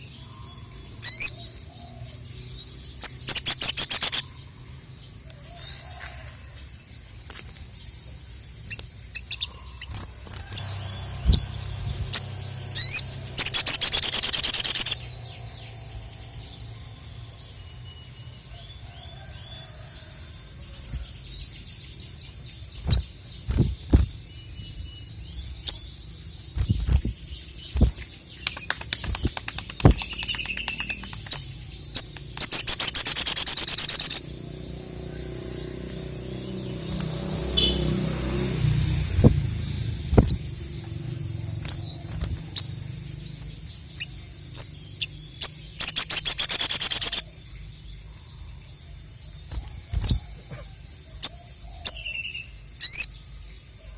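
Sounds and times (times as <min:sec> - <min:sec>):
bird high chirps: 0:00.0 - 0:04.7, 0:07.2 - 0:53.9
bird loud high trills: 0:03.0 - 0:04.4, 0:08.7 - 0:17.2, 0:32.0 - 0:43.1, 0:45.8 - 0:47.3.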